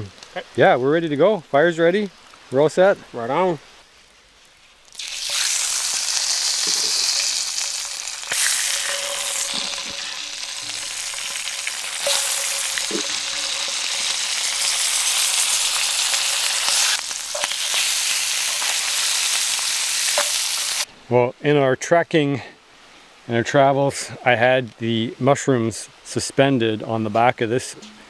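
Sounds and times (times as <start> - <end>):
fish sizzling in a frying pan: 4.4 - 20.9.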